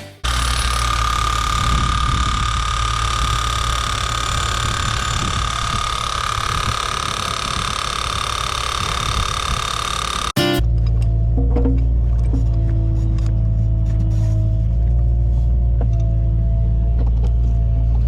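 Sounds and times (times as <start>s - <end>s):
high whine: 0.0s - 11.3s
excavator diesel engine running: 0.0s - 18.0s.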